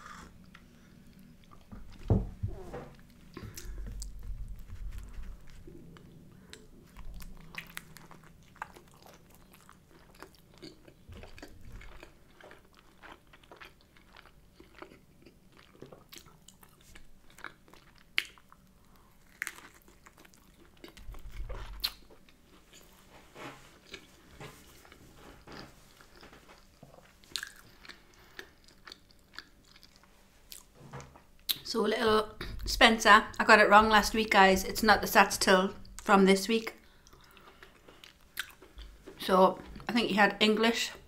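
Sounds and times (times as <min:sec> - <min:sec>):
dull low thumps: 0:01.7 - 0:05.6
chewing with mouth clicks: 0:03.0 - 0:23.0, 0:23.8 - 0:30.7, 0:36.8 - 0:39.0.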